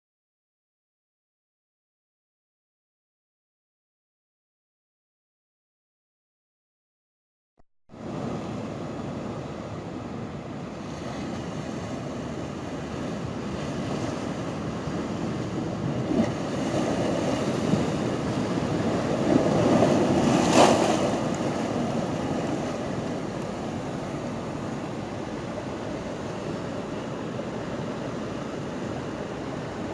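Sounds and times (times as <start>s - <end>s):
wind: 7.9s - 29.9s
sea surf washing: 8.0s - 29.9s.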